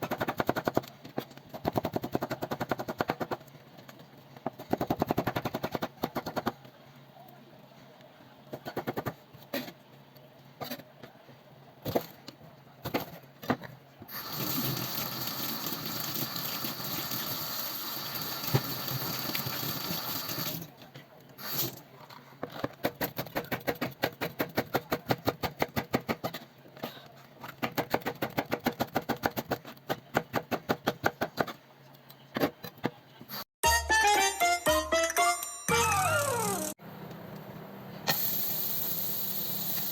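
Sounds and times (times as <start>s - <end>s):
tap water running: 14.1s - 20.6s.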